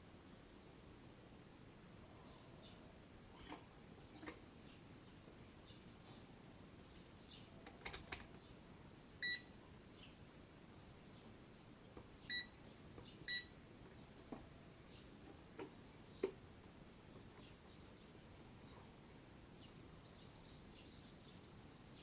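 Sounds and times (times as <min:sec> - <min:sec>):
high electronic beeps: 0:12.3 - 0:12.6
faint clicks and taps: 0:15.2 - 0:17.6.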